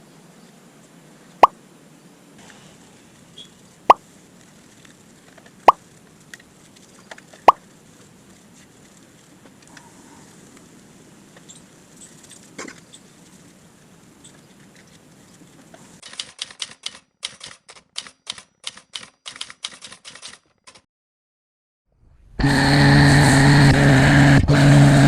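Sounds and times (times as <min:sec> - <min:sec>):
faint background noise: 0:00.0 - 0:16.0
typewriter-like clicks: 0:16.0 - 0:20.9.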